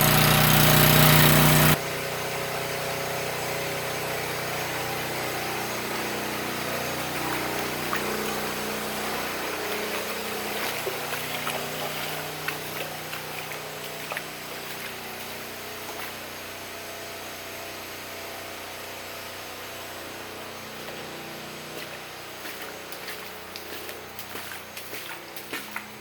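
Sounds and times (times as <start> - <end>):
motor running: 0.0 - 18.8.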